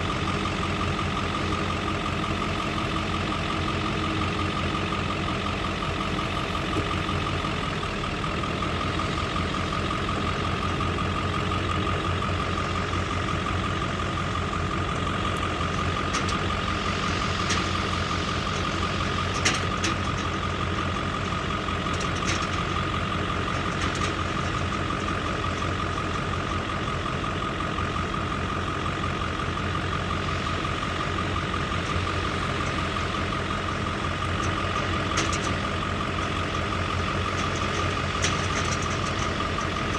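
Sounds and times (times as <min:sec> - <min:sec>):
farm machinery engine droning: 0:00.0 - 0:39.9.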